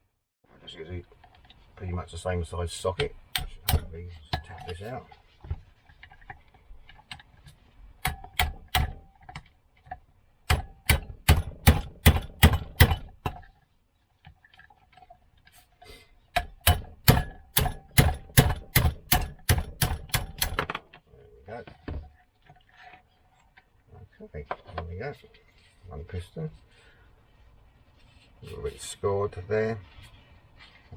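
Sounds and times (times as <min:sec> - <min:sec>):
hammer tapping on metal socket: 0:03.3 - 0:04.4, 0:08.0 - 0:09.1, 0:10.5 - 0:13.4, 0:16.4 - 0:20.8.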